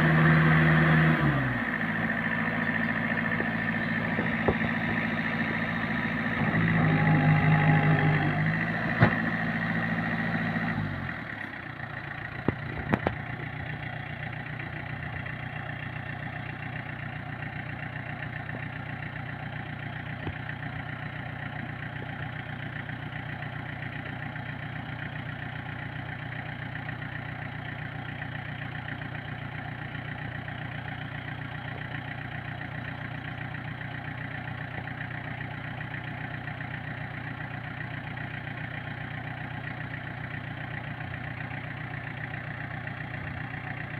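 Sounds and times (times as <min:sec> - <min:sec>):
diesel truck engine idling: 0:00.0 - 0:43.9.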